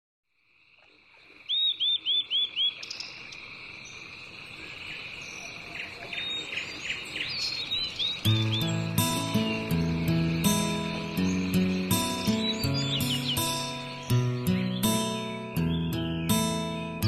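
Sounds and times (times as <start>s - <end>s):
insects droning: 0.3s - 17.0s
bird call: 1.2s - 4.0s, 4.6s - 17.0s
music: 8.2s - 17.0s.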